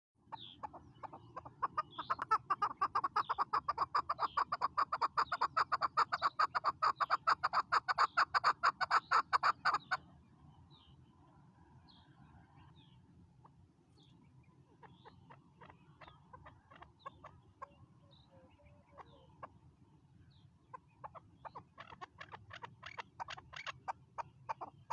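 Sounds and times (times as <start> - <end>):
partridge clucking calls: 0.2 - 10.1, 14.4 - 19.6, 20.3 - 24.9
faint bird chirps: 13.9 - 19.6.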